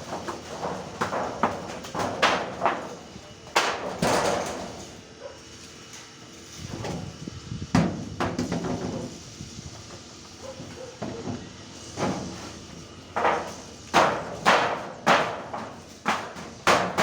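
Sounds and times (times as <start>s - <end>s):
sharp knocks and bangs: 0.0s - 4.9s, 12.0s - 17.0s.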